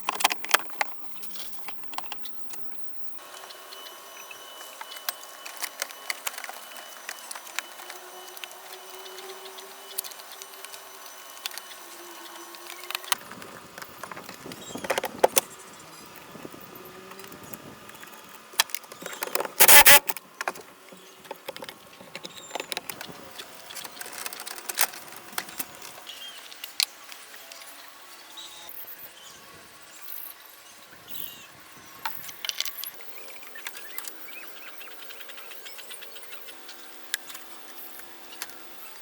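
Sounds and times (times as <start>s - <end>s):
loud burst of noise: 19.6s - 20.1s.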